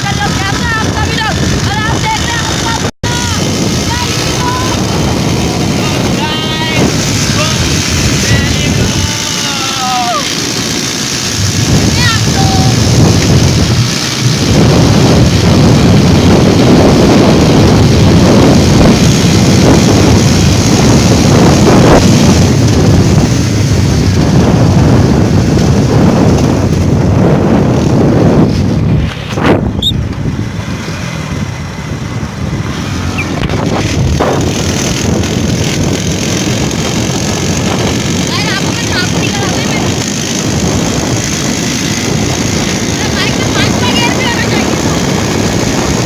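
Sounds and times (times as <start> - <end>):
motorcycle engine running: 0.0 - 46.0
wind buffeting microphone: 0.0 - 46.0.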